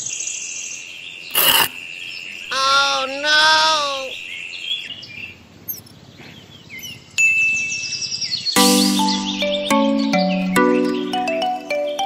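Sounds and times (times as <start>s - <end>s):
high insect trill: 1.3s - 4.2s
drawn-out animal calls: 2.5s - 4.2s.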